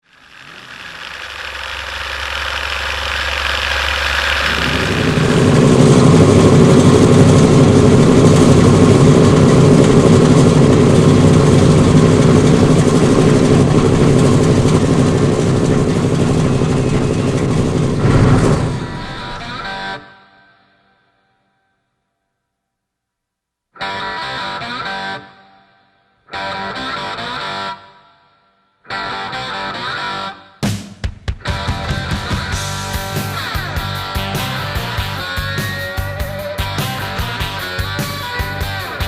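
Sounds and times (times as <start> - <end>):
car engine running: 0.0 - 19.4, 31.6 - 39.0
starter motor whirring: 0.0 - 19.4.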